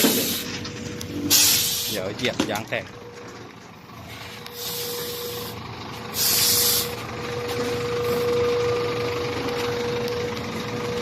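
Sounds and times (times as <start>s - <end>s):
truck air brakes hissing: 0.0s - 2.2s, 4.0s - 8.8s
truck whine: 0.0s - 11.0s.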